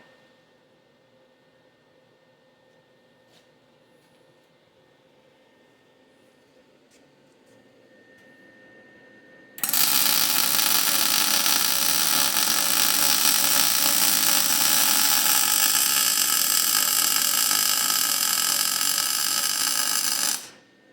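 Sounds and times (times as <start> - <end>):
arc welding crackling buzz: 9.6 - 20.6.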